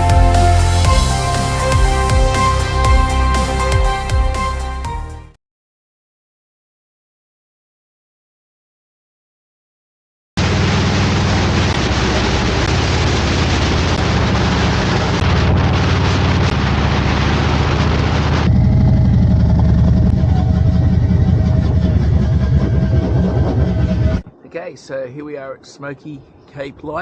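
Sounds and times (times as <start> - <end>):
motorcycle engine running: 0.0 - 4.4, 10.4 - 24.2.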